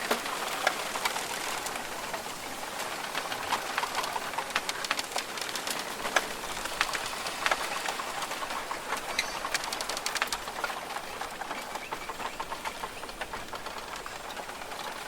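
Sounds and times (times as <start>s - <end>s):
steady rainforest hiss: 0.0s - 15.0s
bird calling: 8.6s - 9.7s.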